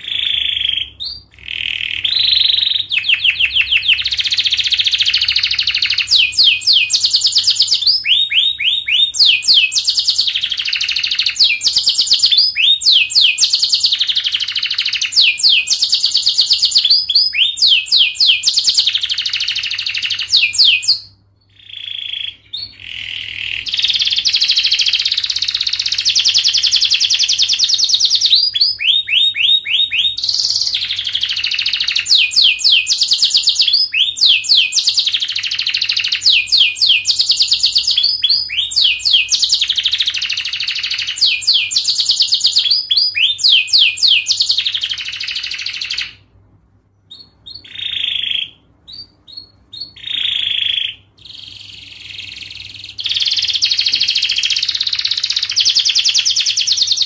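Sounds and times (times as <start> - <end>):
canary singing trills: 0.0 - 46.3, 47.0 - 57.0.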